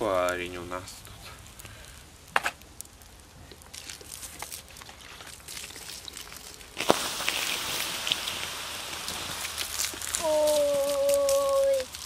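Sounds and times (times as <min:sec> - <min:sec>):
campfire crackling: 0:00.0 - 0:12.0
water hissing on fire: 0:03.6 - 0:12.0.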